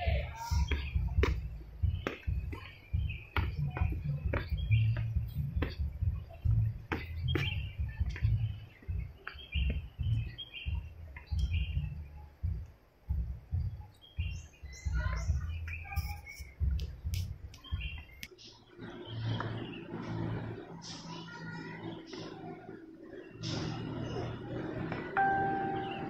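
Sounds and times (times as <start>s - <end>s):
small birds chirping: 0.0s - 26.0s
low thumps: 0.5s - 18.2s.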